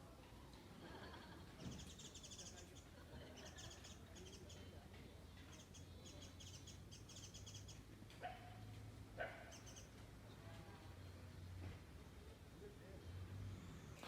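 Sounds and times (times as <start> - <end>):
small birds chirping: 1.3 - 14.0.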